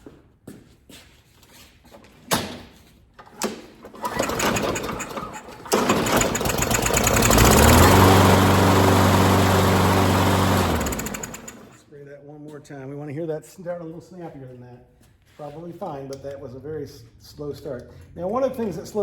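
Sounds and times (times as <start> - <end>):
lawn mower engine cranking and starting: 3.2 - 11.8.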